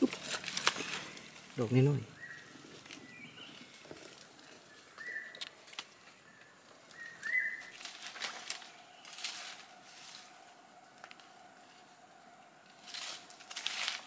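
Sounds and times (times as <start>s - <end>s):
rustles and clicks: 0.0s - 1.7s, 6.8s - 11.9s, 12.7s - 14.0s
bird whistled call: 5.0s - 5.4s, 6.9s - 7.7s.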